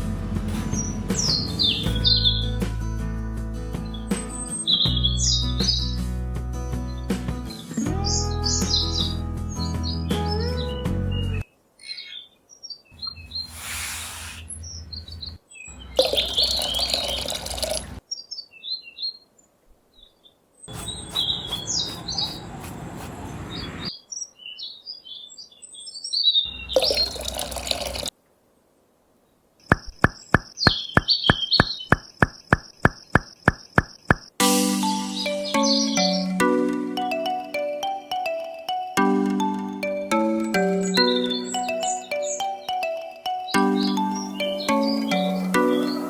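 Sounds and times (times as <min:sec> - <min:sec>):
birds chirping: 0:00.4 - 0:02.6, 0:03.8 - 0:06.1, 0:06.8 - 0:28.1, 0:28.7 - 0:46.0
steady high tone: 0:34.4 - 0:46.0.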